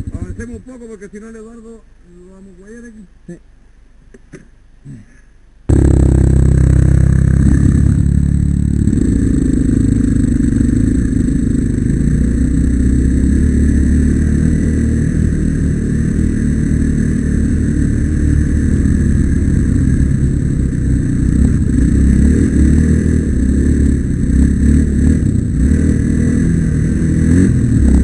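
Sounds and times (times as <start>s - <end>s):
dirt bike engine running: 5.7s - 28.0s.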